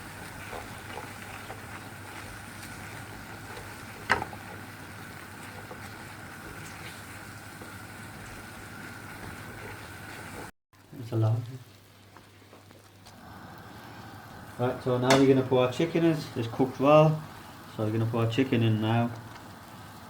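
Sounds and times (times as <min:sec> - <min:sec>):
sauce cooking in a pan: 0:00.0 - 0:20.0
utensil knocking a pan: 0:03.3 - 0:04.5.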